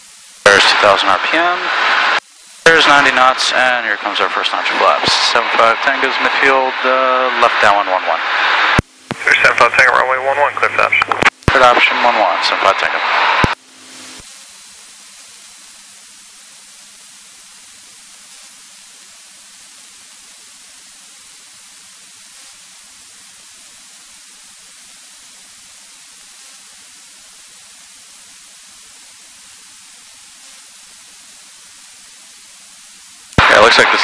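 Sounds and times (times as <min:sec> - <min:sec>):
steady electronic hiss: 0:00.0 - 0:34.0.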